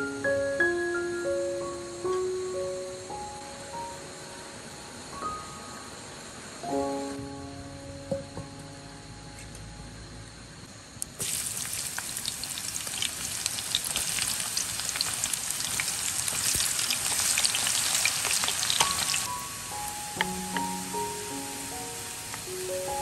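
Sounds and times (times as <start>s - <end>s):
background music: 0.0s - 10.1s, 19.3s - 23.0s
shallots sizzling in hot oil: 11.1s - 23.0s.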